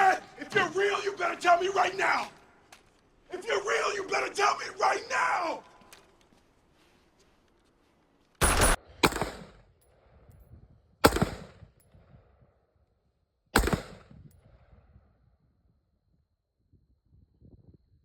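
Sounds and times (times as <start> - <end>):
rifle shots with echo: 8.4 - 9.8, 11.0 - 11.8, 13.6 - 14.3.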